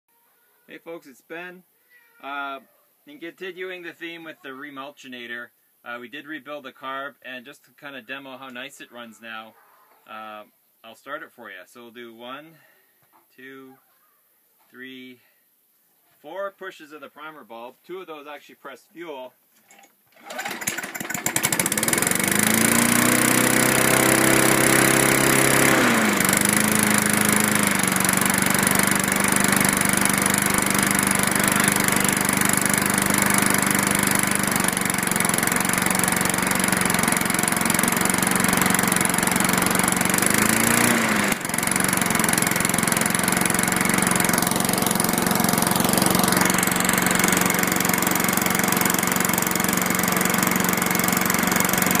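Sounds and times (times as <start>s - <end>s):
small engine running: 20.2s - 52.0s.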